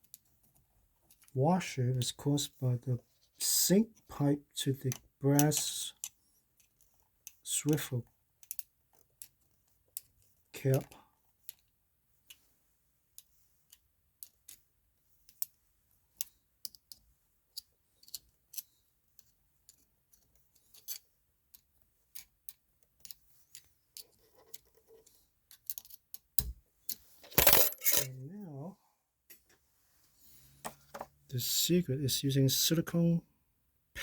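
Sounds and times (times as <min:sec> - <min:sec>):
metal plumbing parts clicking: 0:25.5 - 0:28.2.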